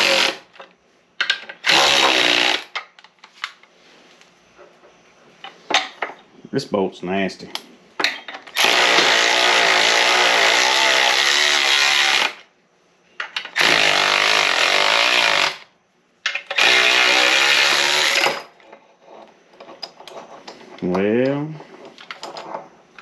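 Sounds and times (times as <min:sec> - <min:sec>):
power tool motor running: 0:00.0 - 0:00.4, 0:01.6 - 0:02.7, 0:08.6 - 0:12.4, 0:13.6 - 0:15.6, 0:16.6 - 0:18.4.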